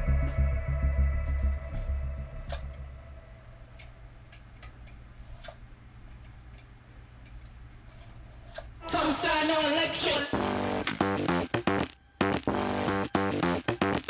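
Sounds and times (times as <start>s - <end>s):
background music: 9.0s - 14.0s.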